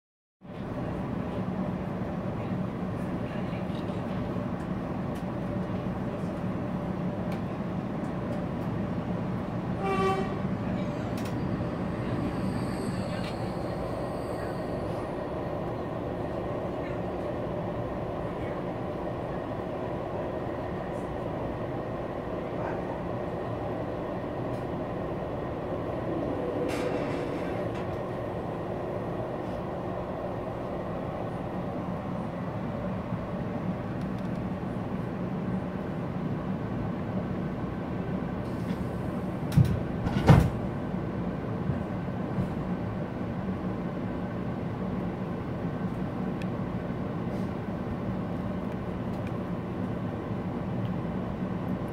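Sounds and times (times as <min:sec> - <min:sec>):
train rumbling on rails: 0:00.4 - 0:51.9
train horn blast: 0:09.8 - 0:10.6.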